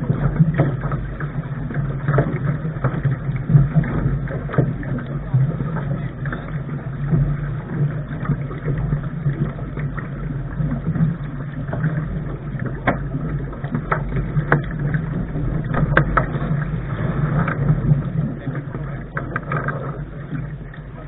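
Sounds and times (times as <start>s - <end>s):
low rumble: 0.0s - 21.0s
rushing wind and water: 0.0s - 21.0s
sharp knocks on a boat: 12.6s - 20.3s.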